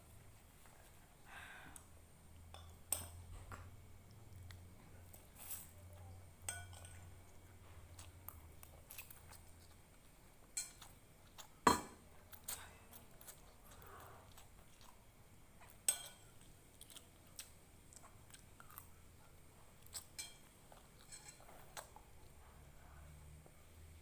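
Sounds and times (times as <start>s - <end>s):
cutlery clinking on a plate: 6.4s - 7.0s, 11.6s - 12.0s, 15.8s - 16.3s, 20.0s - 20.4s, 21.0s - 21.5s.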